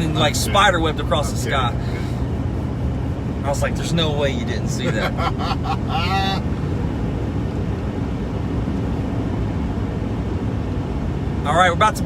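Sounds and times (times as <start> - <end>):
person talking: 0.0 - 1.8
car cabin road and engine rumble: 0.0 - 12.0.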